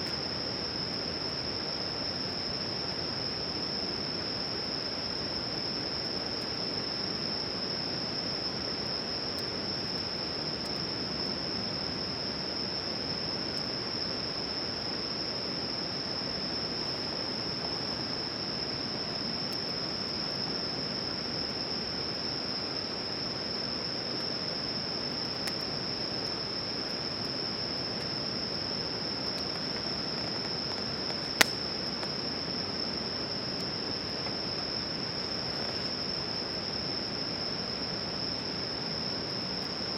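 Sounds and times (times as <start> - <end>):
night insects chorus: 0.0 - 39.9
campfire crackling: 25.1 - 32.6.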